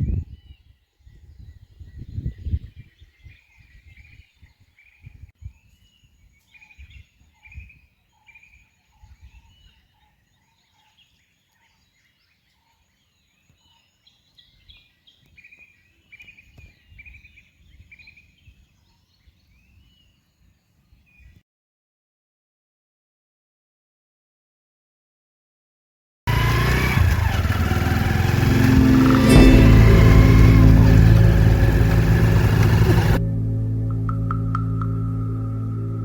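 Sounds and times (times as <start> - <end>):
birds chirping: 26.5 - 33.2
low rumbling bumps: 28.2 - 36.0.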